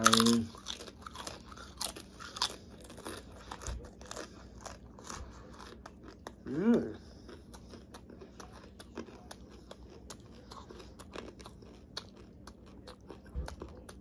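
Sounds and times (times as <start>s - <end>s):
person chewing chips: 0.0s - 14.0s.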